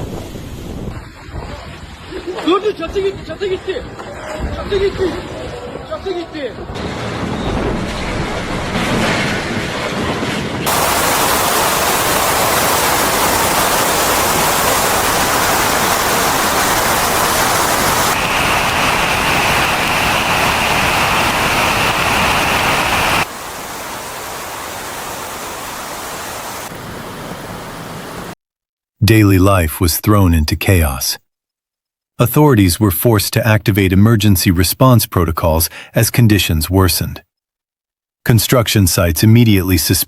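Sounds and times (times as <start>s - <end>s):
strong wind on microphone: 0.0s - 2.2s, 6.6s - 13.5s.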